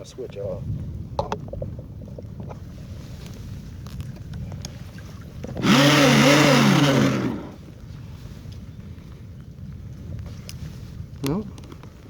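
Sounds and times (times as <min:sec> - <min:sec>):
electric motor revving: 0:05.6 - 0:07.6.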